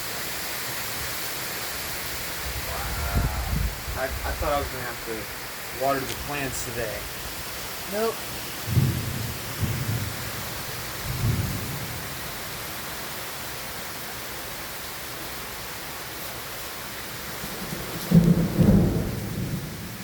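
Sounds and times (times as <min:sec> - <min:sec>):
steady rain: 0:00.0 - 0:20.0
thunder rumbling: 0:02.4 - 0:07.2, 0:08.6 - 0:12.4, 0:17.4 - 0:20.0.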